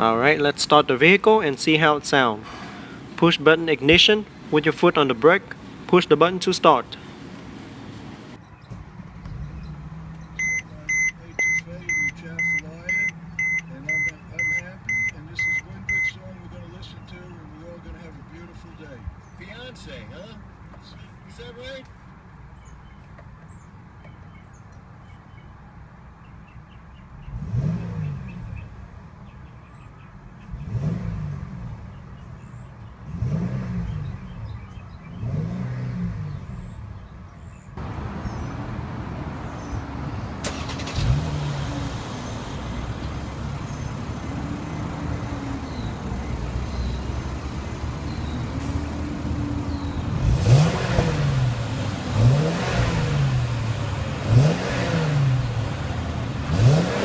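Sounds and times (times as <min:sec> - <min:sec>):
loud steady noise: 0:00.0 - 0:08.4
car engine idling and revving: 0:00.0 - 0:18.6, 0:26.2 - 0:57.0.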